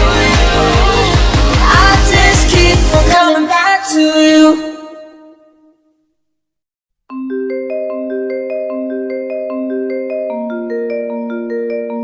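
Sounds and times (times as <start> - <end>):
mallet percussion melody: 7.1 - 12.0.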